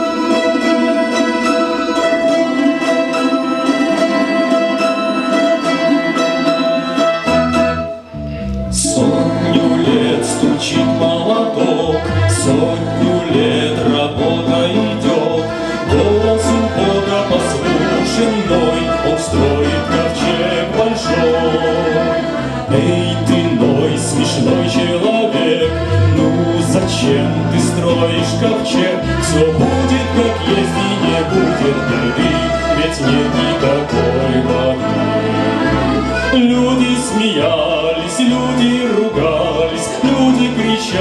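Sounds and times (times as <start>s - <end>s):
instrumental accompaniment: 0.0s - 41.0s
choir singing a hymn: 8.8s - 41.0s.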